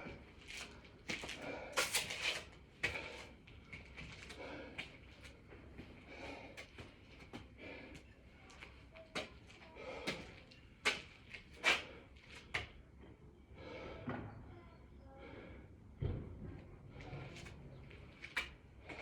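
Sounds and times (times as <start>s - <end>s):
man breathing hard: 1.3s - 2.0s, 2.8s - 8.3s, 13.5s - 14.2s.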